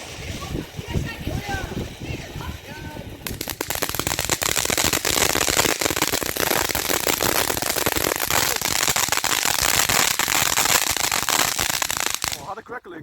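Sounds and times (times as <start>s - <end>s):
crackling firework pops: 3.2s - 12.5s.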